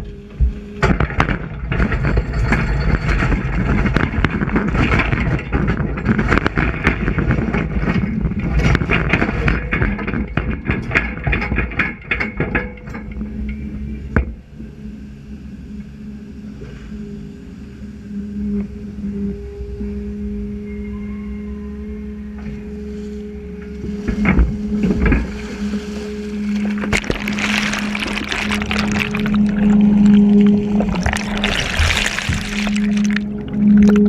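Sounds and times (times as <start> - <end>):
excavator engine hum: 0.0 - 34.0
rock and metal clattering: 0.8 - 13.2.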